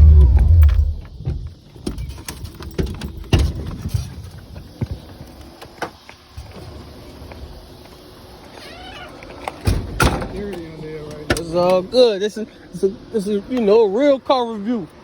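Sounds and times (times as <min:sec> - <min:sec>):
car engine rumbling loudly: 0:00.0 - 0:01.4.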